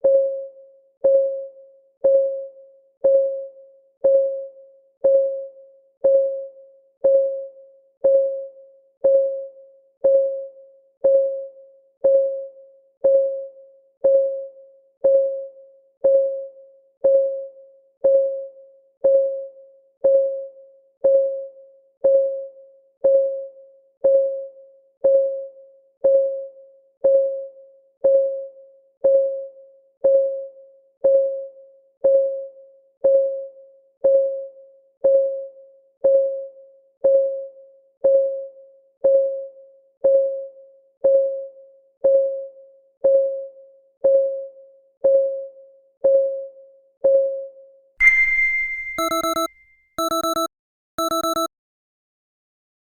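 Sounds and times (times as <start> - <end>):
countdown timer ticking: 48.0 - 51.5.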